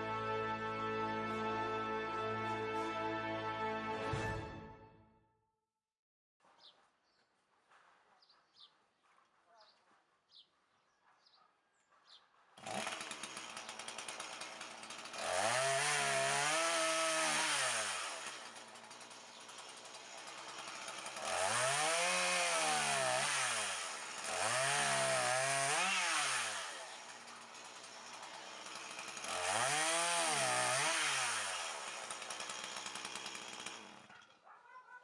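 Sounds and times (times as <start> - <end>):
chainsaw idling and revving: 12.6 - 34.4.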